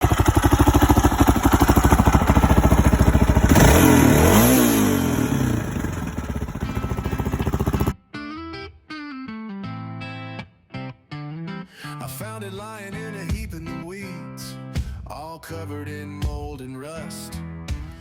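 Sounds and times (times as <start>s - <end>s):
motorcycle engine idling and revving: 0.0s - 8.0s.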